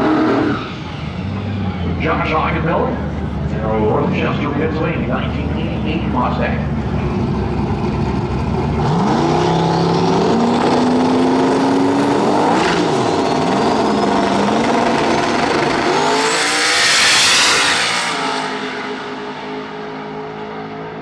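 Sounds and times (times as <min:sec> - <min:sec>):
high whine: 0:00.0 - 0:08.0
drag car engine accelerating: 0:00.0 - 0:21.0.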